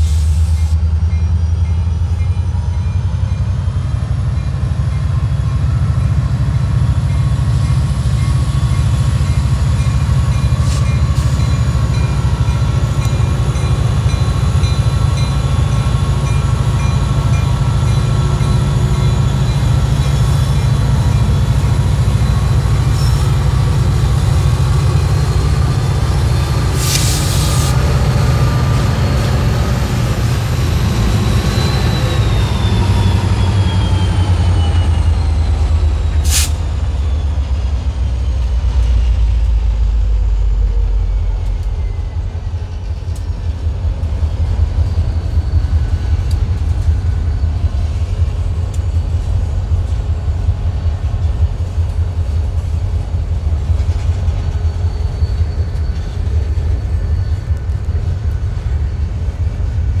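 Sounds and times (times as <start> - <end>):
diesel locomotive engine rumble: 0.0 - 60.0.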